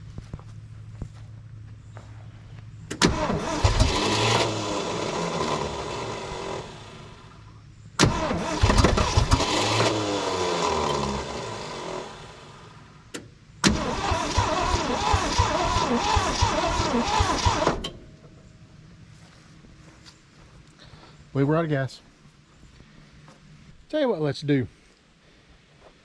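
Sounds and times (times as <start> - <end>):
engine running unevenly: 0.0 - 20.0
engine cranking: 2.9 - 7.0, 8.0 - 12.4, 13.6 - 18.1.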